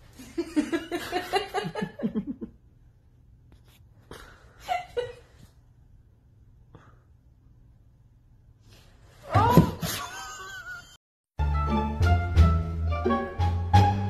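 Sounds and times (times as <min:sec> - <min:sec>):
person laughing: 0:09.8 - 0:11.0.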